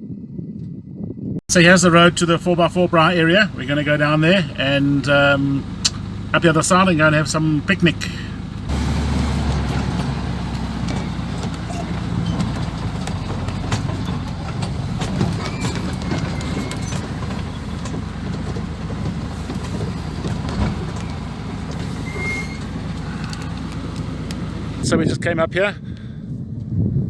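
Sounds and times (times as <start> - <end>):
car engine running at low speed: 0.0 - 27.0
knocks and rattles over bumps: 8.4 - 24.8.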